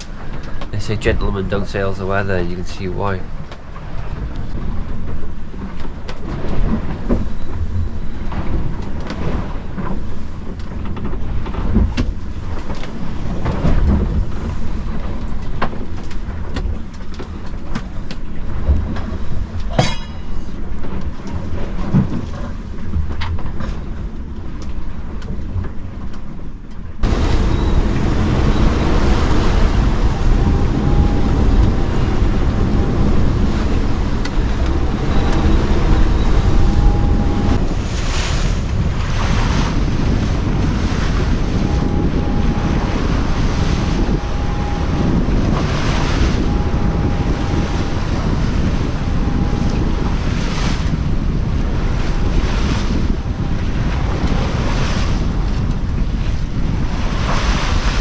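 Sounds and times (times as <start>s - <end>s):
waves rushing and breaking: 0.0s - 25.0s, 27.0s - 58.0s
thin high tone: 19.7s - 20.6s, 27.0s - 37.6s, 41.6s - 50.0s
wind buffeting microphone: 27.0s - 58.0s.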